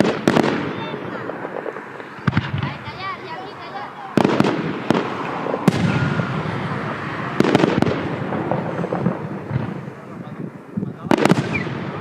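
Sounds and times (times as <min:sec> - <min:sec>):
fireworks bangs: 0:00.0 - 0:12.0
fireworks crackle: 0:00.0 - 0:12.0.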